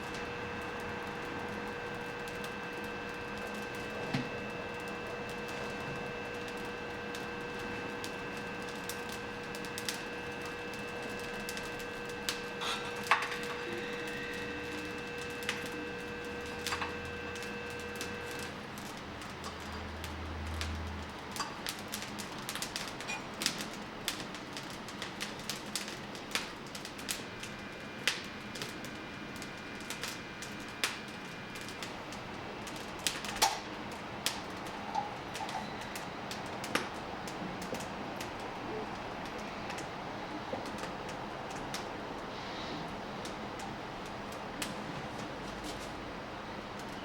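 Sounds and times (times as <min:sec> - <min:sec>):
fire hiss: 0:00.0 - 0:47.0
wood fire crackling: 0:00.0 - 0:47.0.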